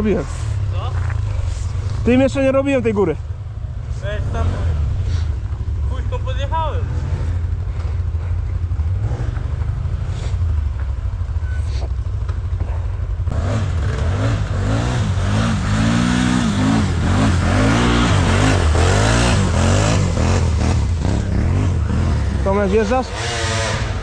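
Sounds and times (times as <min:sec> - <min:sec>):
quad bike engine revving: 0:03.8 - 0:10.6, 0:13.3 - 0:24.0.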